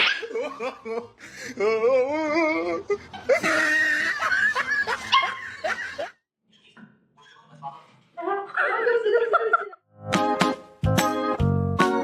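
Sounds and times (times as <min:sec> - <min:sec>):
laughter: 0:00.0 - 0:01.2, 0:03.1 - 0:06.2, 0:08.5 - 0:09.8.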